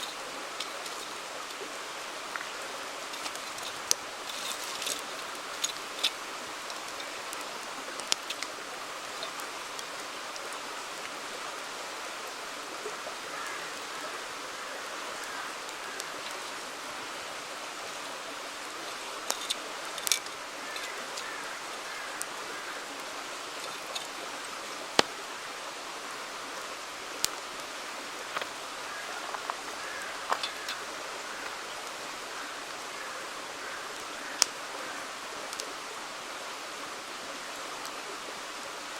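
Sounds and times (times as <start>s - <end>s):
campfire crackling and popping: 0.0s - 11.2s, 15.6s - 16.8s, 18.6s - 22.4s, 23.0s - 25.4s, 27.1s - 32.0s, 34.3s - 34.6s, 35.4s - 35.8s
river rushing: 0.0s - 38.9s.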